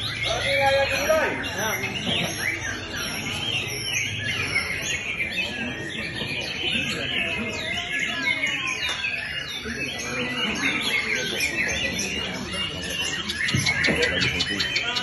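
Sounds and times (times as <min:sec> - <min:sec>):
songbirds singing: 0:00.0 - 0:15.0.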